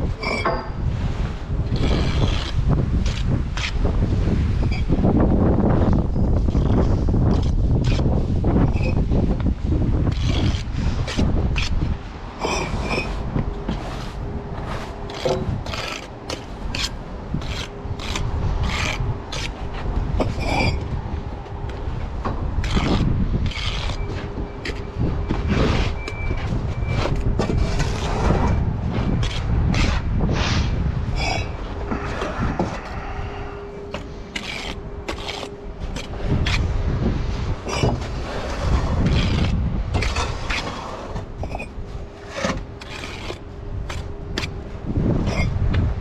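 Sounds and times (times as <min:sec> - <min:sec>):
wind rumbling on microphone: 0:00.0 - 0:46.0
trowel scraping mortar on brick: 0:01.7 - 0:03.8, 0:10.0 - 0:11.8, 0:12.4 - 0:20.8, 0:22.6 - 0:33.1, 0:33.9 - 0:36.7, 0:37.6 - 0:44.6.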